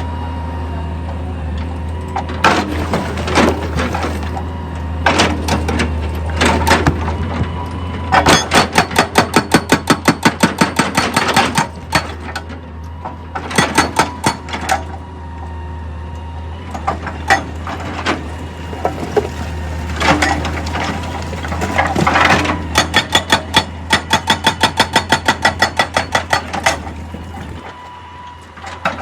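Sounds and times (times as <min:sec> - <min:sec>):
low engine drone: 0:00.0 - 0:10.1, 0:11.4 - 0:29.0.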